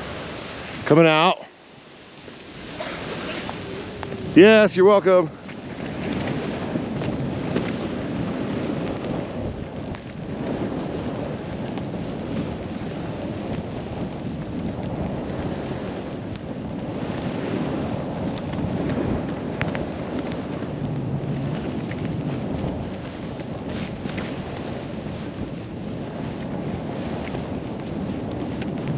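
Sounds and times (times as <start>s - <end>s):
snowboard hissing through snow: 0.0s - 5.3s
wind rushing over microphone: 0.0s - 28.9s.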